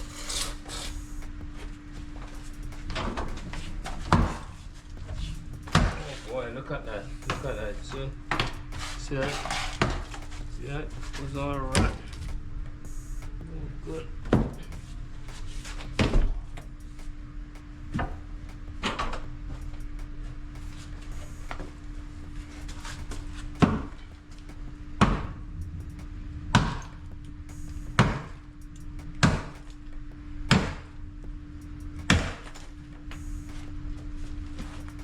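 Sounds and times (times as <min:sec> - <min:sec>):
hammer striking pipes: 0:00.0 - 0:20.0, 0:26.6 - 0:29.8, 0:30.5 - 0:30.9, 0:32.0 - 0:33.6
steady low hum: 0:00.0 - 0:35.0.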